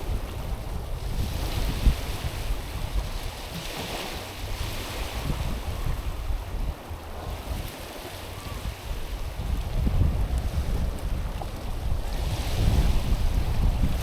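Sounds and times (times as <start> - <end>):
waves washing over pebbles: 0.0 - 14.0
wind rumbling on microphone: 0.0 - 14.0.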